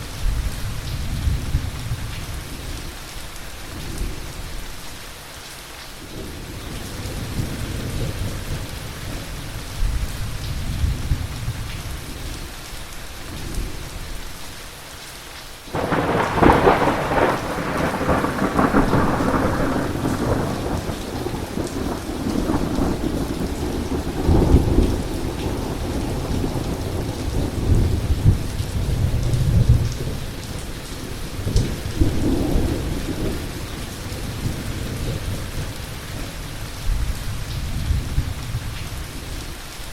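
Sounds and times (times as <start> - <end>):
heavy rain: 0.0 - 39.9
close thunderclap: 15.7 - 35.8
thunder rumbling: 15.7 - 38.8.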